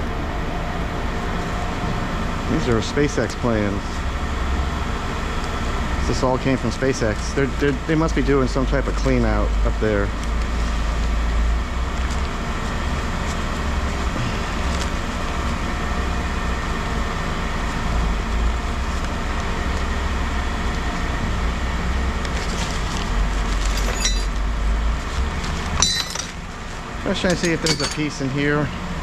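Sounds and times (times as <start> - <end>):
vehicle engine idling: 0.0 - 29.0.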